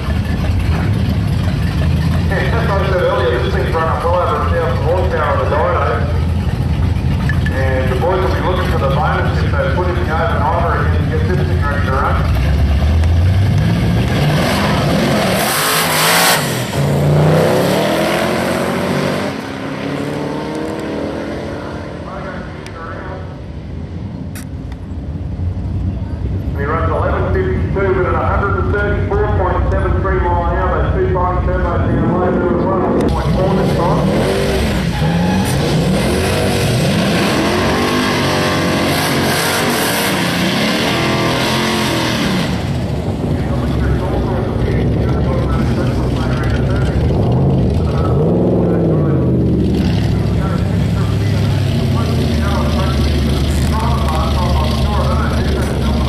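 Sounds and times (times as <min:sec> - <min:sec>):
car engine accelerating hard: 0:00.0 - 0:23.8, 0:26.6 - 0:56.0.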